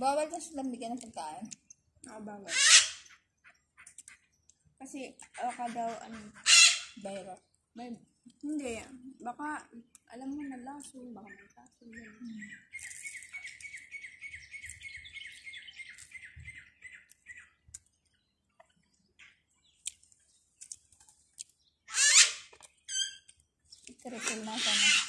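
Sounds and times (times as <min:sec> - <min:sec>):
bird trilling chirps: 0:02.5 - 0:25.0.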